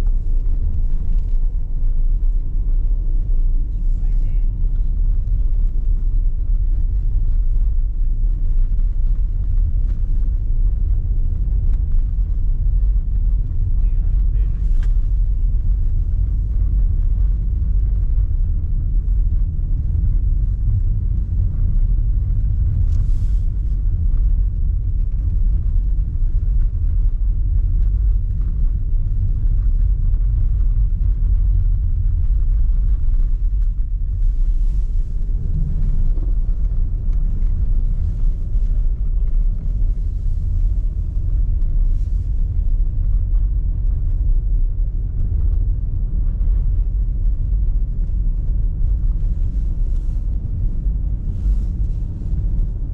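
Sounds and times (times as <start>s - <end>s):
car road and engine rumble: 0.0s - 52.9s.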